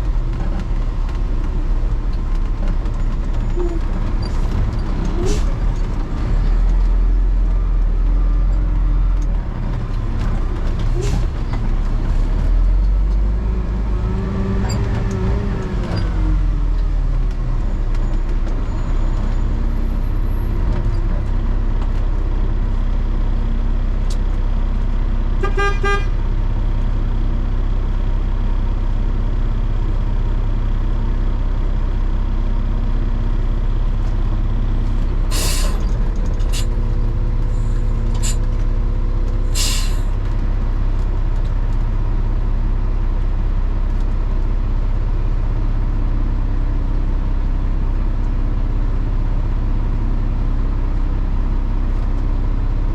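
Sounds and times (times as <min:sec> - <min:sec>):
garbage truck engine hum: 0:00.0 - 0:52.9
short horn toot: 0:25.4 - 0:26.2.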